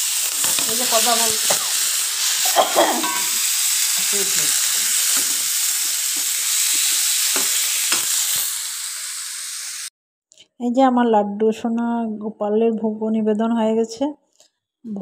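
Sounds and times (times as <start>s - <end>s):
vegetables sizzling in hot oil: 0.0s - 9.9s
spoon tapping pan: 3.0s - 3.4s, 7.3s - 8.1s.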